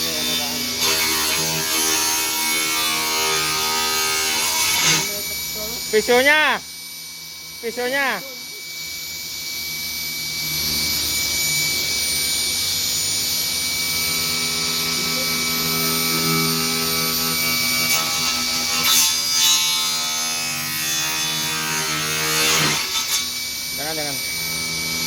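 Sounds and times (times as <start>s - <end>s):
blade rasping bursts: 0.0s - 6.6s, 14.2s - 25.0s
woodworking machine humming and whining: 0.0s - 25.0s.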